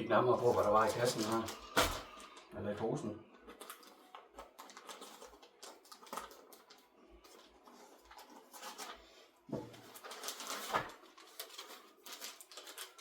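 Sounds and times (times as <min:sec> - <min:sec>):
plastic bag rustling: 0:00.0 - 0:13.0.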